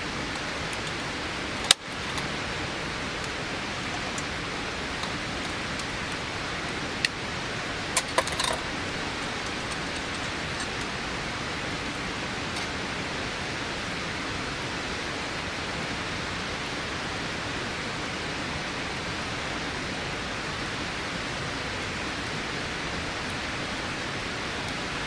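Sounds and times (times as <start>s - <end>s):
rushing water: 0.0s - 25.0s
small clicks and knocks: 0.3s - 2.4s, 8.0s - 10.9s.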